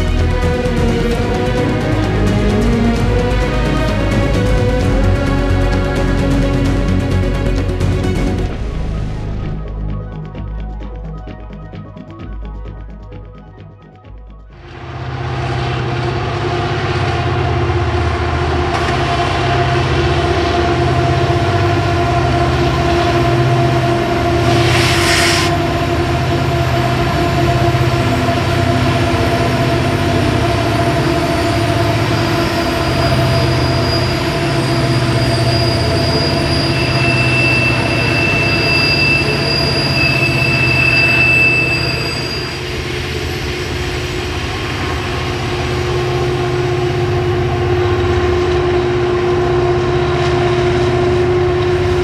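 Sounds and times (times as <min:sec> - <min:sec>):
diesel engine drone: 0:14.7 - 0:33.6, 0:43.2 - 0:52.0
high-pitched wheel squeal: 0:24.1 - 0:25.8, 0:31.3 - 0:44.2
short hiss: 0:24.4 - 0:25.6.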